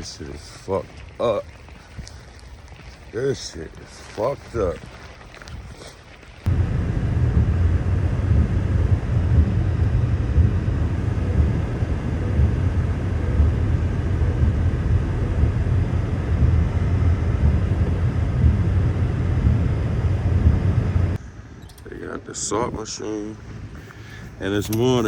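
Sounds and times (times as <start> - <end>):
low fluttering rumble: 6.5 - 21.2.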